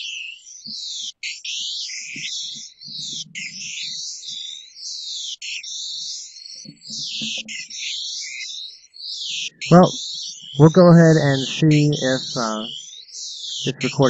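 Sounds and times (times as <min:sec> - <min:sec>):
high chirping sweeping tones: 0:09.7 - 0:12.7.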